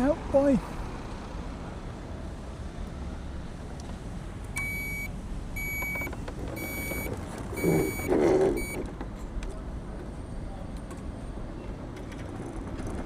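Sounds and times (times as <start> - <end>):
high electronic warning beep: 4.6 - 8.8.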